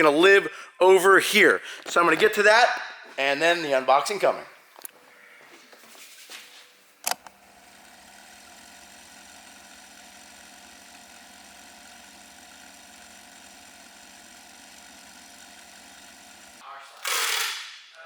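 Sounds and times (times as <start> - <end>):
sharp click: 7.0 - 7.3
machine hum with held tones: 7.0 - 16.6.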